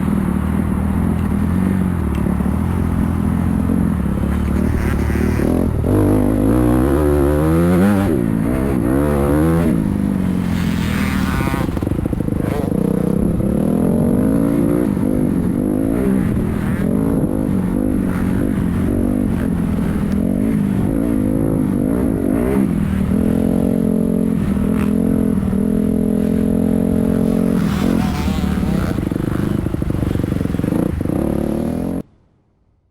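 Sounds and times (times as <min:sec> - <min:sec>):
motocross bike engine revving: 0:01.4 - 0:32.0.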